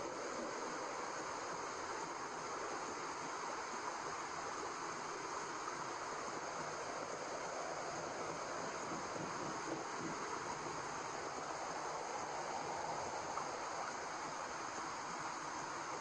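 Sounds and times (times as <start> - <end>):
white noise hiss: 0.0 - 16.0.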